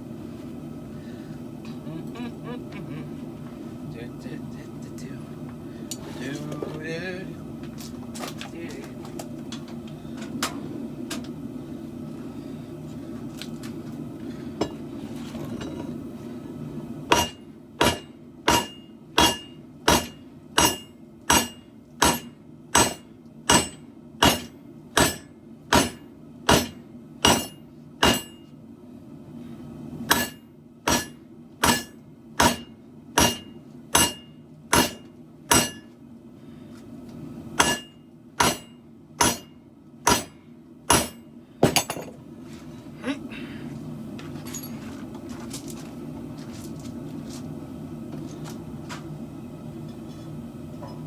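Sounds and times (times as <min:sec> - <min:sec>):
hammer ringing on steel blade: 0:17.1 - 0:28.4, 0:30.1 - 0:35.9, 0:37.6 - 0:39.5, 0:40.1 - 0:41.2.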